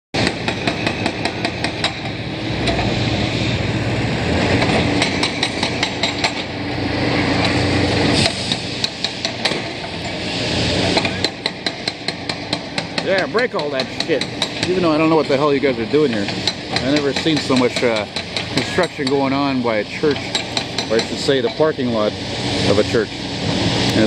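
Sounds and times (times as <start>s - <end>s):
demolition breaker hammering: 0.2s - 3.0s, 4.5s - 6.6s, 8.5s - 10.2s, 11.0s - 21.6s
diesel engine running: 0.2s - 24.0s.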